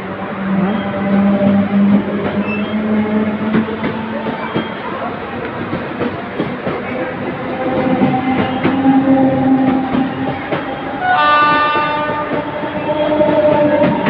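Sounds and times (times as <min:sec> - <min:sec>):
train wheels clattering over rail joints: 0:01.0 - 0:14.0
train horn: 0:07.7 - 0:14.0.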